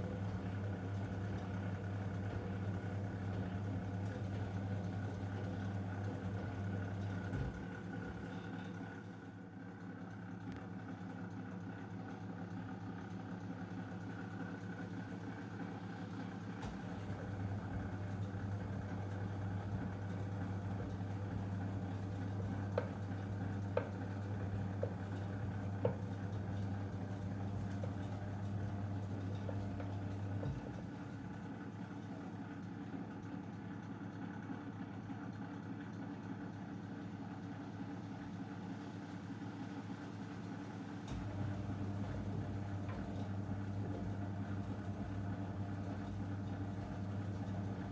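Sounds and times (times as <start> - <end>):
washing machine drum motor hum: 0.0 - 8.3, 14.3 - 33.8, 37.7 - 47.9.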